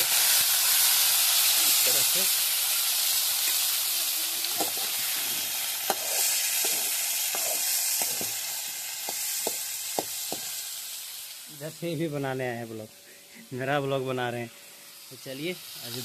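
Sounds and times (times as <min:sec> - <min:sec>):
food sizzling in a pan: 0:00.0 - 0:16.0
metal spatula scraping a pan: 0:04.5 - 0:08.5.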